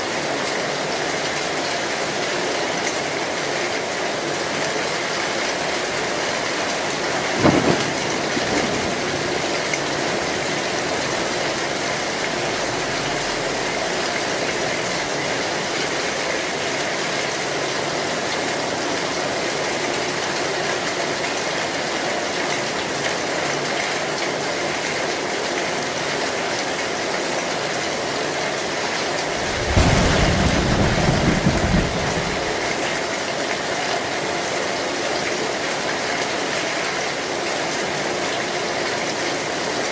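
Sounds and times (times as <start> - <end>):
heavy rain on a metal roof: 0.0 - 39.9
low rumble of thunder: 6.0 - 16.2, 29.2 - 33.1
thunderclap: 6.3 - 15.6, 29.2 - 33.0.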